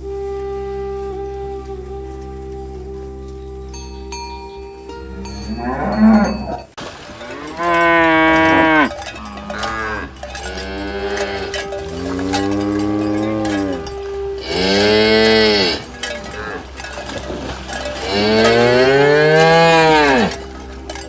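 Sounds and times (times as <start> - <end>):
cattle mooing: 5.0 - 21.0.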